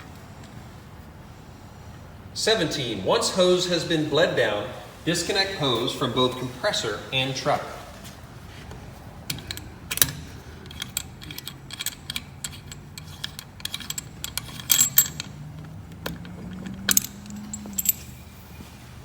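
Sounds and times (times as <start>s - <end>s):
metallic clanks: 9.3s - 18.6s
metal hose fittings clinking: 9.3s - 18.7s.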